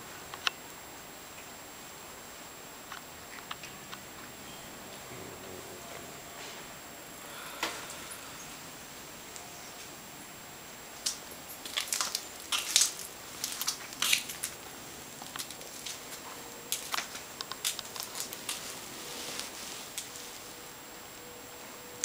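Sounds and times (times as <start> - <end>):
clicks taps and rustling: 11.0 - 14.6.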